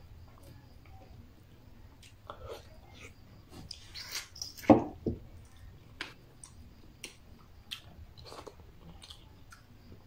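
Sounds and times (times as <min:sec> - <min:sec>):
chewing: 0:05.4 - 0:09.8.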